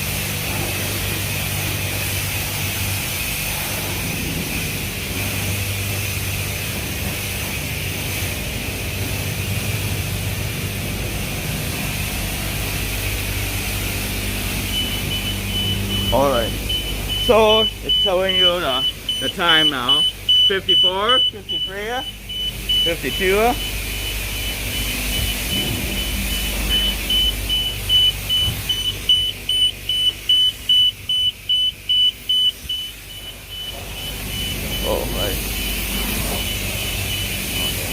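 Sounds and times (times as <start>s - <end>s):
high-pressure water spray: 0.0s - 37.9s
low equipment hum: 0.0s - 37.9s
low machinery rumble: 0.0s - 37.9s
high single-tone beeping: 14.7s - 37.9s.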